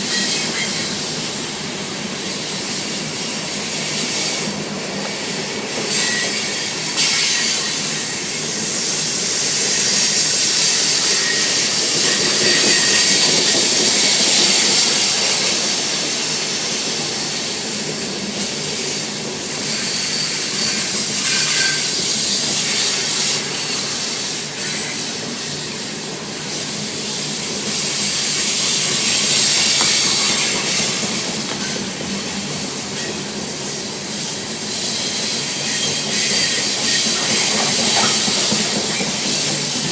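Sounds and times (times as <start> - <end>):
train wheels rushing on rail: 0.0 - 39.9
wheel squeals: 5.9 - 15.8, 34.8 - 39.9.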